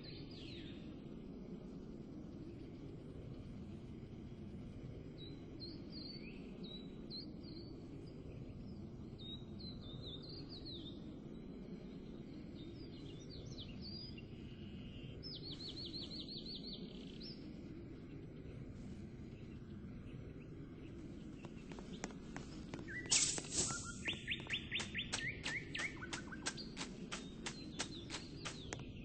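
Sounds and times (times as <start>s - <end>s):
low background rumble: 0.0s - 29.0s
small birds chirping: 5.0s - 29.0s
bird trill: 22.9s - 28.7s.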